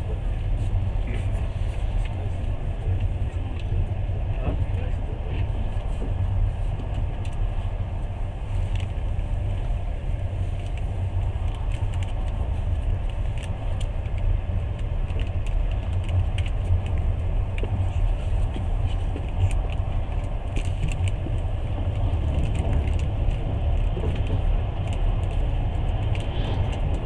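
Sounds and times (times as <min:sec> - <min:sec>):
train rumbling inside carriage: 0:00.0 - 0:27.0
rattles and clicks: 0:10.6 - 0:27.0.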